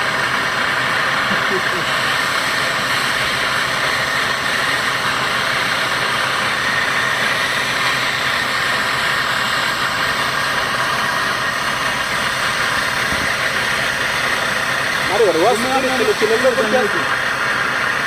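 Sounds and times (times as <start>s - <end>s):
brazing torch flame hissing: 0.0s - 18.0s.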